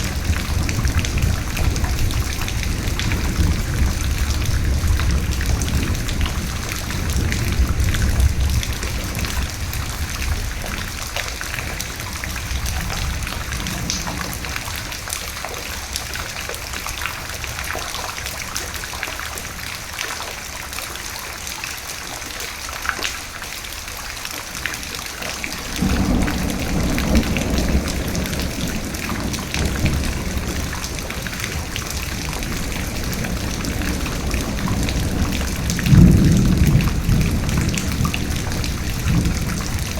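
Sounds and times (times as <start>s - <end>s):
thunder rumbling: 0.0s - 15.4s, 25.1s - 39.9s
rain pattering: 0.0s - 39.9s.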